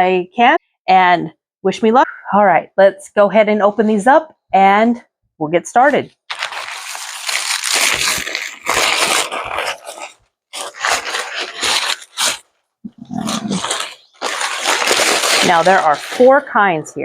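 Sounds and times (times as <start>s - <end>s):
food wrappers crinkling and tearing: 6.2s - 16.9s.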